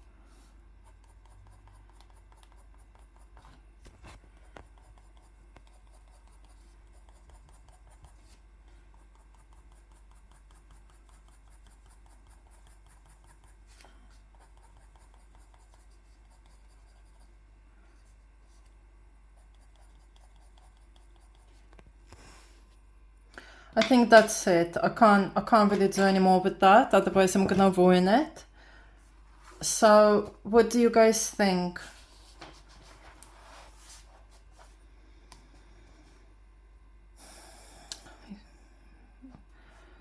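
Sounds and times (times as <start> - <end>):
pencil scratching on paper: 0.3 - 17.4, 19.2 - 22.5, 23.8 - 27.8.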